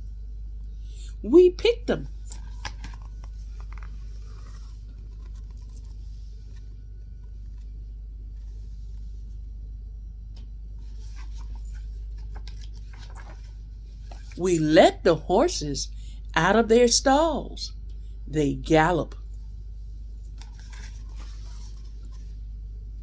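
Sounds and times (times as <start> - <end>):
steady low hum: 0.0 - 23.0
paper pages rustling: 2.4 - 6.7, 10.9 - 14.7, 20.3 - 22.2.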